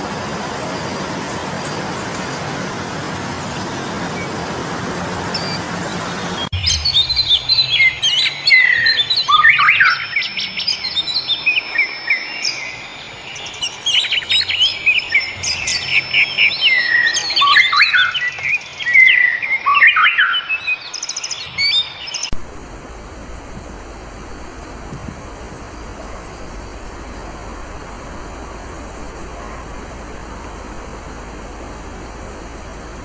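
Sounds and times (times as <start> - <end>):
birds chirping and calling: 0.3 - 22.3
high bird whistles: 6.4 - 22.3.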